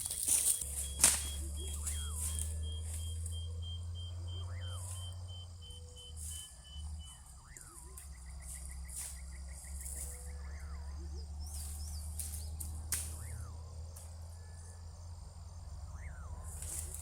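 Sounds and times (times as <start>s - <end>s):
downward sliding whistled call: 0.0s - 13.7s
fast pulsing trill: 0.0s - 17.0s
insects chirring: 0.0s - 17.0s
sharp snaps: 0.2s - 2.6s, 12.0s - 14.2s.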